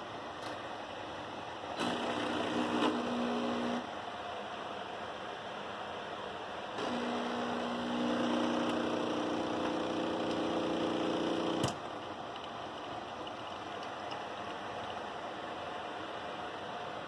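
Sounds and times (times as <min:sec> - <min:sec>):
coffee machine pump humming: 0:01.8 - 0:03.9, 0:06.8 - 0:17.0.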